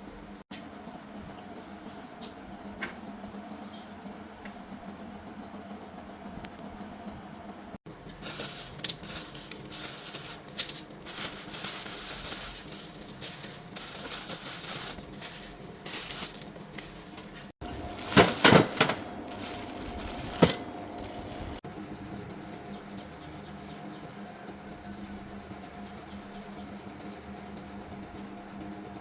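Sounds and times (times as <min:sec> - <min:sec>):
small metal parts clinking: 0:07.9 - 0:21.6.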